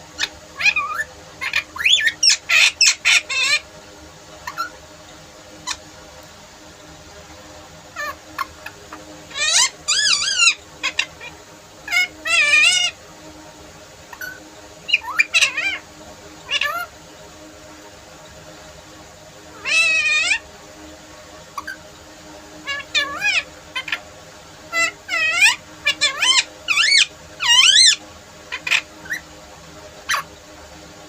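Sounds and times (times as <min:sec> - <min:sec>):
parrot calling: 0:00.0 - 0:03.7, 0:04.4 - 0:04.8, 0:05.6 - 0:05.9, 0:07.9 - 0:13.0, 0:14.1 - 0:16.9, 0:19.5 - 0:20.5, 0:21.5 - 0:21.8, 0:22.6 - 0:29.3, 0:30.0 - 0:30.3.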